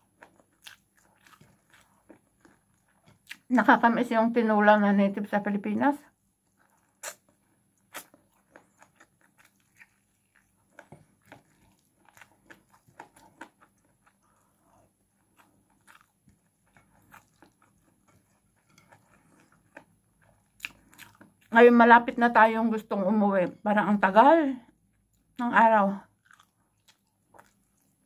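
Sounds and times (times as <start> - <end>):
faint chewing and mouth smacks: 0.0 - 3.5, 6.1 - 21.6, 24.7 - 25.4, 26.1 - 28.0.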